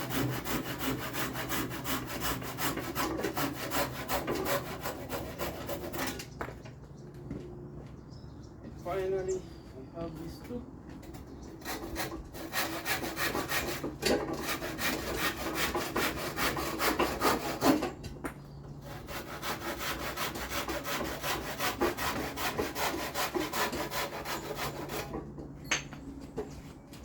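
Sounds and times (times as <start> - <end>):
hand saw cutting wood: 0.0 - 6.3, 11.6 - 18.1, 18.8 - 25.4.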